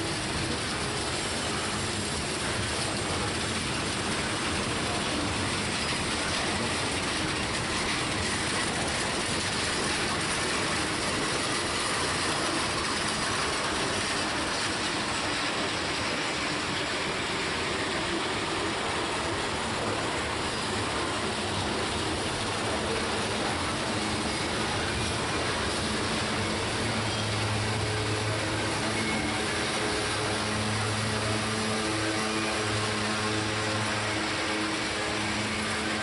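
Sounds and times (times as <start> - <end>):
steel wheels running on rails: 0.0 - 36.0.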